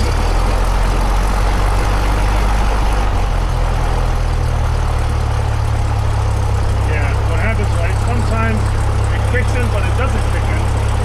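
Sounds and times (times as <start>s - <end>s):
small plane engine idling: 0.0s - 11.0s.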